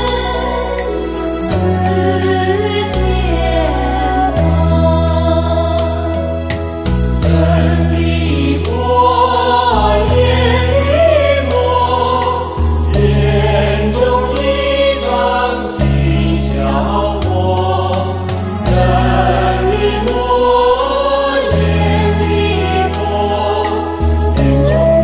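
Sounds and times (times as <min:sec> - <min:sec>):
choir singing devotional song: 0:00.0 - 0:25.0.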